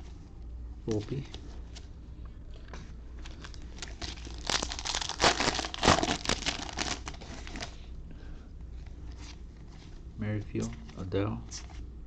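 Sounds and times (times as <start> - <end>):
wrapper crinkling: 3.2 - 7.7
wrapper tearing: 3.3 - 7.7.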